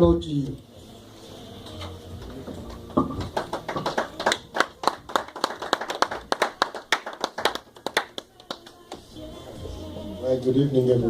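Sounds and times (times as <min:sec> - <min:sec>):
people clapping: 0:02.7 - 0:09.2.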